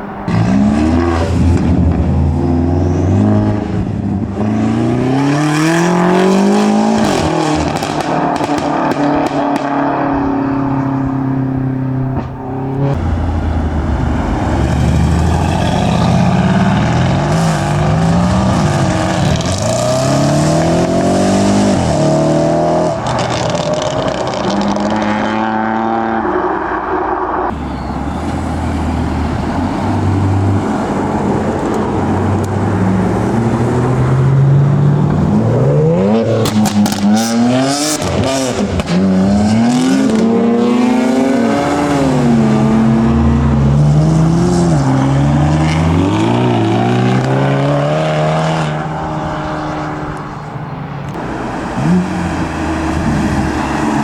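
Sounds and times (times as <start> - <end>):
car engines revving: 0.0 - 54.0
exhaust pops and bangs: 7.0 - 9.7, 36.4 - 39.0.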